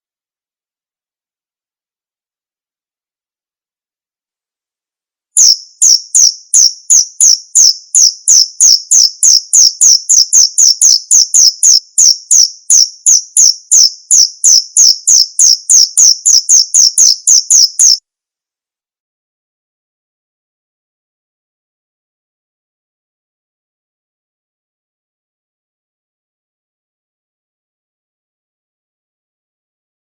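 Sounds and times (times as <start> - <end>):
cricket chirping: 5.4 - 18.0.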